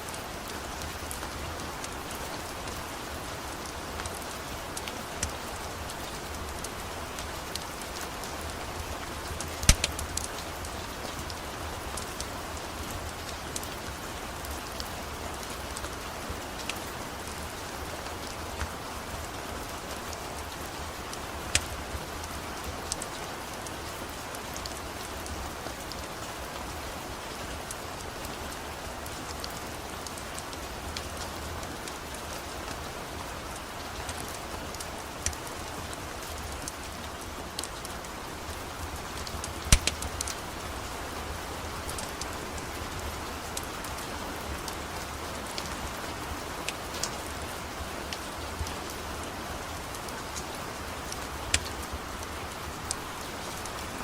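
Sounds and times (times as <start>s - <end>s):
rain falling: 0.0s - 54.0s
sharp clicks: 9.6s - 10.1s, 39.5s - 40.4s.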